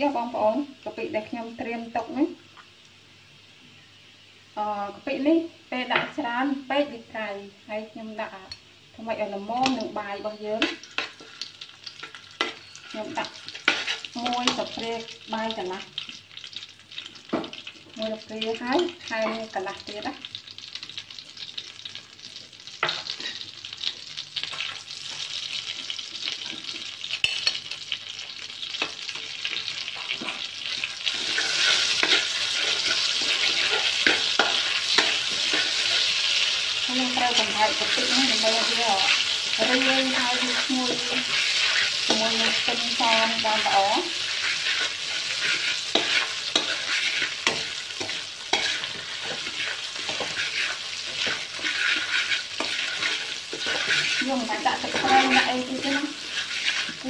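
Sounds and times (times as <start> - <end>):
food sizzling in hot oil: 0.0 - 57.0
metal spatula scraping a pan: 10.6 - 14.8, 26.3 - 27.8, 28.7 - 57.0.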